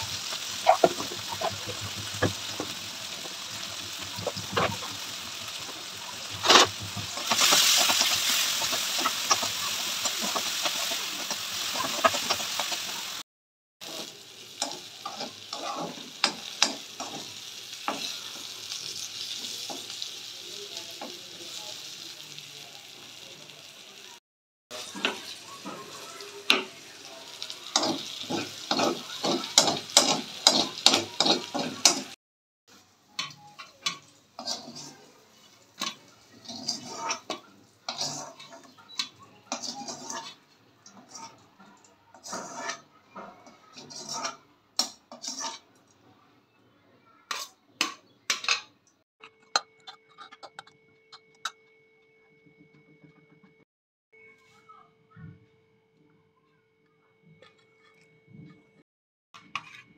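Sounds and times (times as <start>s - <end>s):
onions sizzling in hot oil: 0.0s - 13.2s, 13.8s - 45.8s
steel spoon scraping pan: 6.3s - 13.1s, 13.9s - 20.0s, 33.2s - 41.5s, 42.1s - 45.8s, 49.3s - 51.4s, 59.4s - 59.9s.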